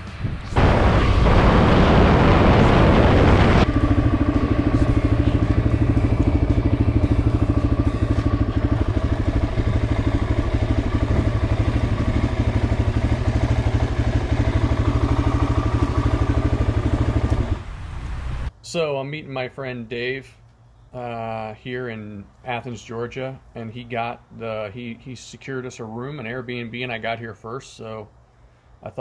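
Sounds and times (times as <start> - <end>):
loud rushing noise: 0.0 - 18.5
motorcycle engine running steadily: 0.0 - 18.5.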